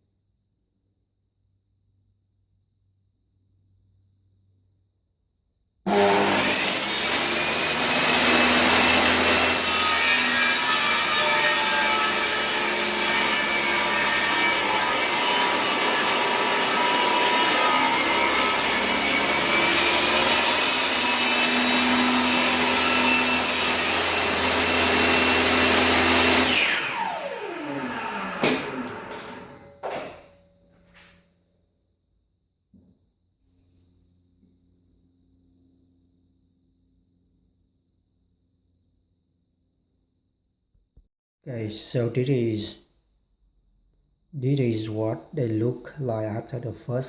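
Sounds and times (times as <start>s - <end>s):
saw blade spinning down: 5.9s - 30.2s
table saw cutting wood: 5.9s - 30.2s.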